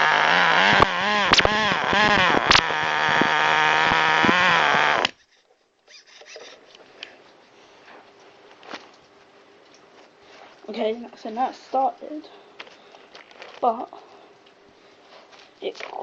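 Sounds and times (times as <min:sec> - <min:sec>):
small two-stroke engine revving: 0:00.0 - 0:05.1.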